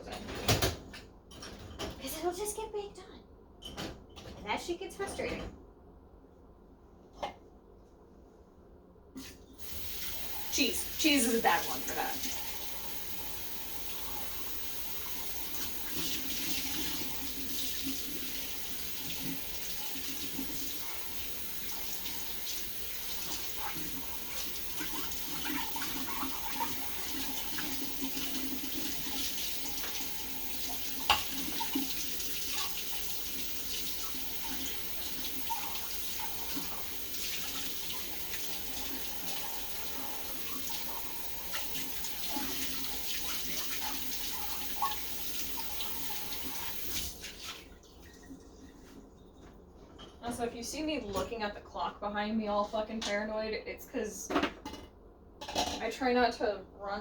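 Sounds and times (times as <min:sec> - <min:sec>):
tap running into sink: 0:09.6 - 0:47.2.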